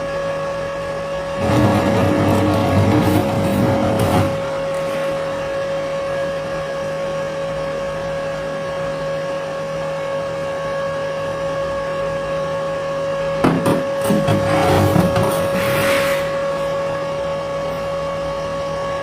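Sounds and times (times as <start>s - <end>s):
small electric motor whining: 1.2s - 5.5s.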